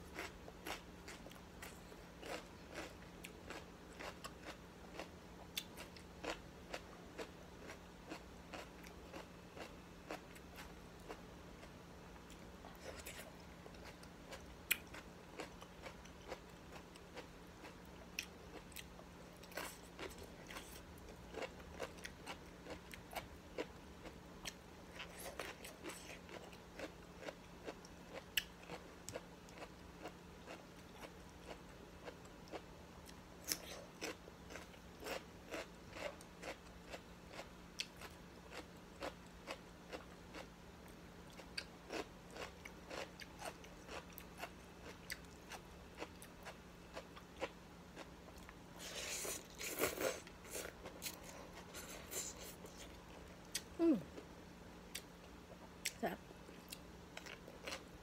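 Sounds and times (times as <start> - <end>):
steady low hum: 0.0 - 58.0
person chewing and biting food: 41.3 - 53.7.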